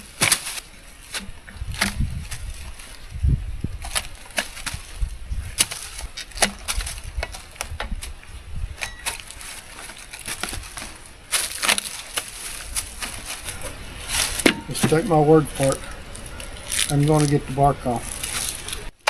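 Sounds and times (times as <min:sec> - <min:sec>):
rough scrape of bark: 0:00.0 - 0:19.0
bark cracking and snapping: 0:03.8 - 0:08.2, 0:08.8 - 0:19.0.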